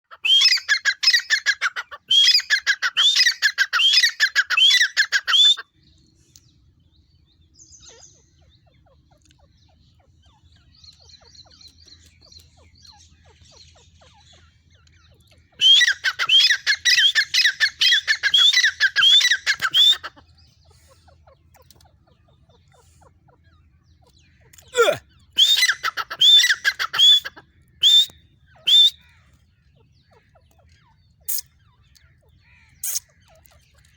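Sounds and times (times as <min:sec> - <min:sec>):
francolin calling: 0:00.0 - 0:05.7, 0:15.4 - 0:21.4, 0:24.1 - 0:29.2.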